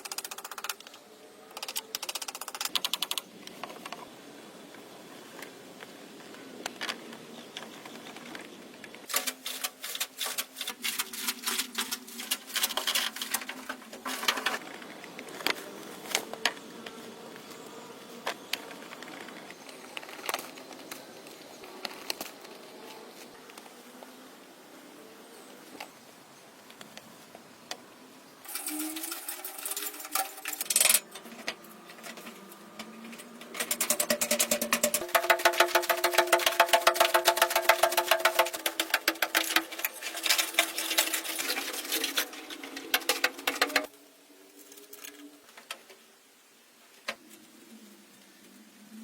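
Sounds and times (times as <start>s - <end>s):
rapid sharp clicking and tapping: 0.0s - 0.9s, 33.5s - 43.9s.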